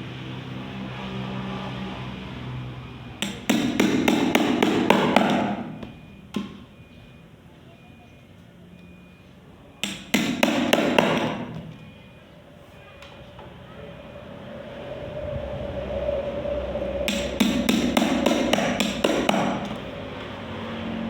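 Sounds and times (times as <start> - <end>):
rapid hammer blows: 3.2 - 5.8, 9.8 - 11.6, 16.8 - 20.0.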